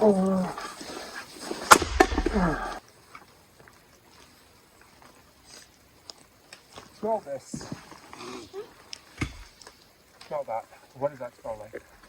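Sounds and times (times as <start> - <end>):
tool splitting firewood: 0.0 - 2.8, 9.0 - 9.8.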